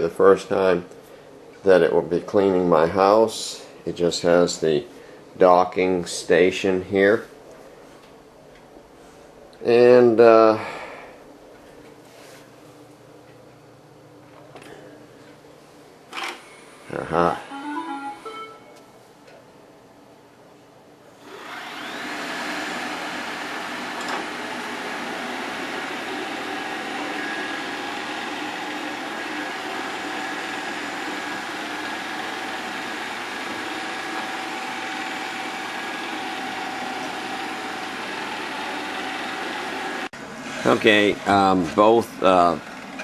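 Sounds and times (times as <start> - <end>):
faint high tones: 17.3 - 19.1
robot vacuum whirring: 21.2 - 40.1.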